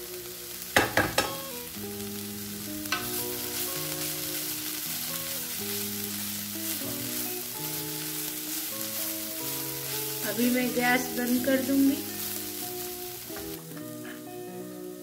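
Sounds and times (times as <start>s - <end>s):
filling sizzling in oil: 0.0s - 14.4s
soft background music: 0.0s - 15.0s
wooden spatula scraping a pan: 2.8s - 13.7s.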